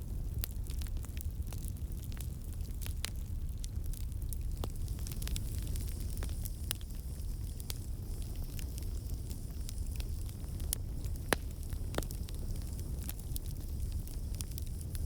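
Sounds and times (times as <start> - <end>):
burning wood crackling: 0.0 - 15.0
campfire rumble: 0.0 - 15.0.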